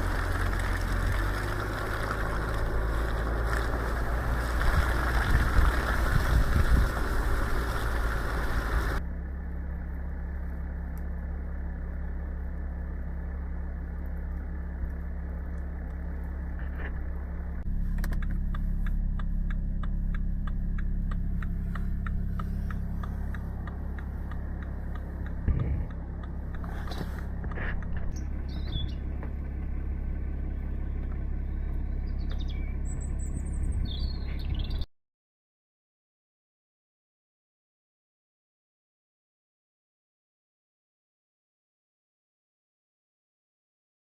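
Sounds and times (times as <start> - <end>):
car engine idling: 0.0 - 34.8
fast regular ticking: 18.2 - 28.0.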